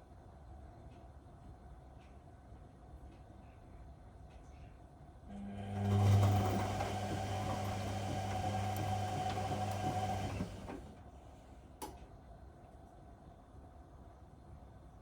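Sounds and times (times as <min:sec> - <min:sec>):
washing machine drum motor humming: 0:05.3 - 0:11.0.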